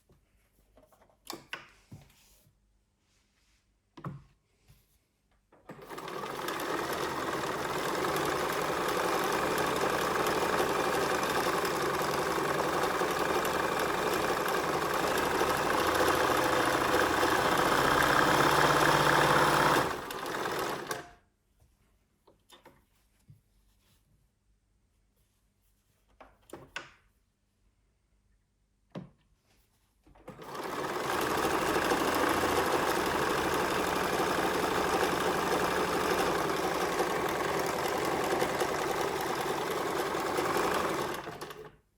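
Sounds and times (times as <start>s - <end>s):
sewing machine running: 5.7s - 21.1s, 30.3s - 41.8s.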